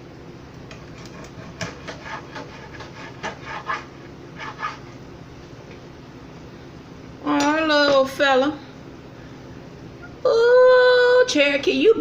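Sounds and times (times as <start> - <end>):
knife cutting fish: 0.7 - 4.9.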